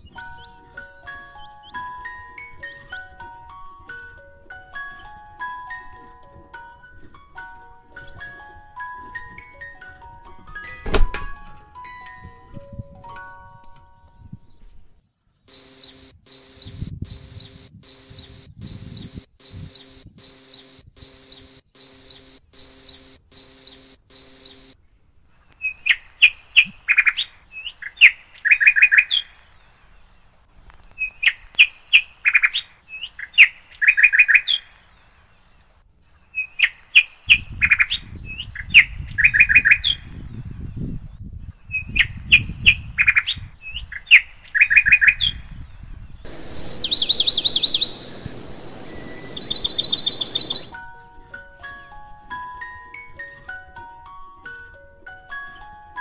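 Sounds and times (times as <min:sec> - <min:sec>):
bird song: 0:00.0 - 0:52.0
birds calling: 0:15.5 - 0:24.8, 0:46.3 - 0:51.7
low rumble: 0:46.3 - 0:50.8.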